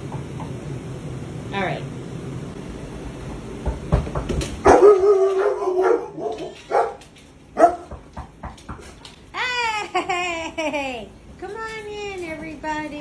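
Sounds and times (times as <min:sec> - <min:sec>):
dog barking: 0:04.6 - 0:07.0, 0:07.6 - 0:07.9.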